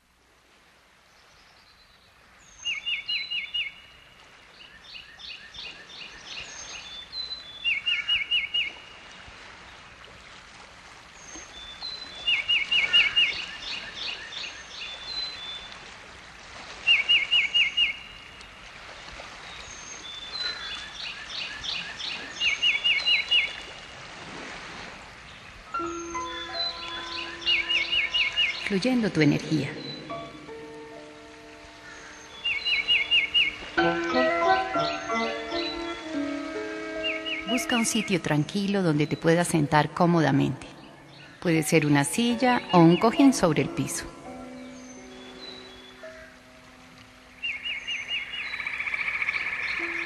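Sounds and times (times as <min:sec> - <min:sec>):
steady background hiss: 0:00.0 - 0:50.0
birds chirping: 0:11.2 - 0:15.7, 0:19.5 - 0:23.7, 0:25.3 - 0:50.0.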